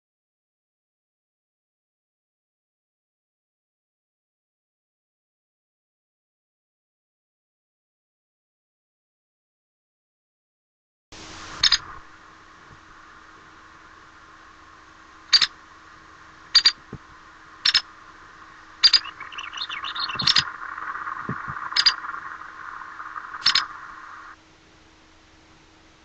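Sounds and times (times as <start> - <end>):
woodpecker chatter: 11.6 - 11.9, 15.2 - 24.4
woodpecker call notes: 11.6 - 12.0, 12.7 - 24.4.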